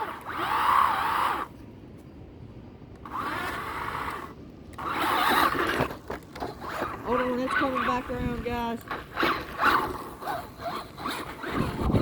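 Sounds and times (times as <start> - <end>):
rc car motor whining: 0.0 - 1.5, 3.0 - 12.0.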